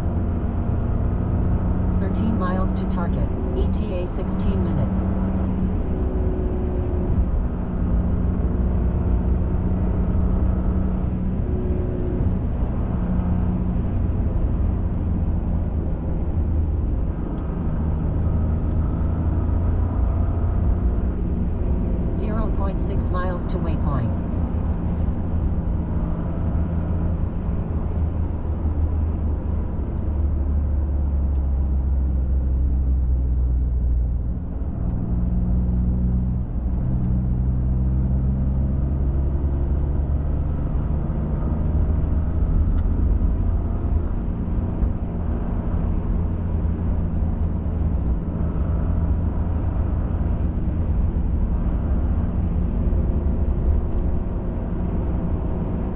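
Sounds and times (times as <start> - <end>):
truck engine running: 1.9 - 5.2.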